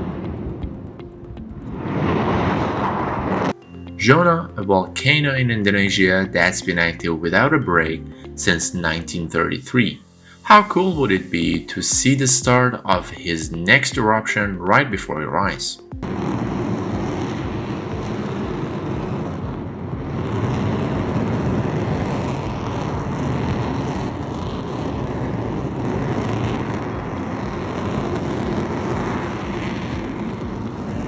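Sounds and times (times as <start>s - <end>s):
volcano erupting with deep roar: 0.0s - 3.6s, 16.0s - 31.0s.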